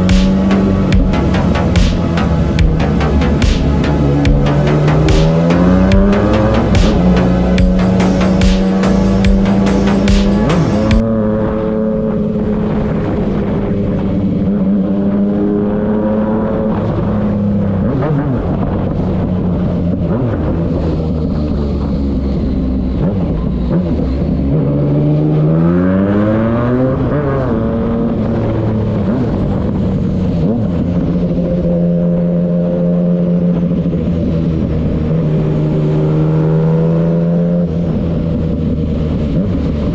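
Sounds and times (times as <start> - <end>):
motorcycle engine running: 0.0 - 12.5
engine revving: 0.0 - 39.9.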